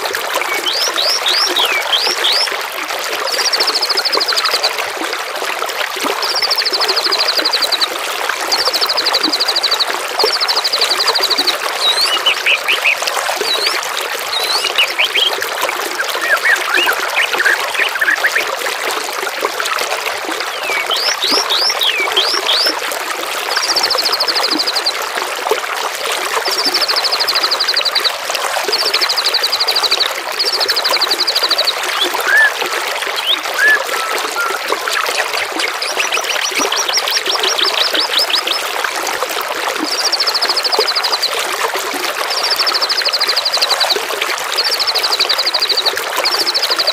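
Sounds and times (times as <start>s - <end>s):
trickling water: 0.0s - 46.9s
songbird trills and chirps: 0.5s - 2.5s, 8.5s - 15.4s, 16.0s - 18.5s, 20.5s - 22.7s, 33.2s - 38.7s.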